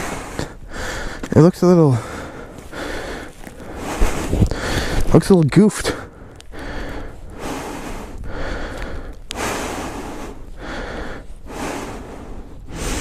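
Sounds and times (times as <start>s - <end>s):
person breathing heavily: 0.0s - 5.1s, 5.8s - 13.0s.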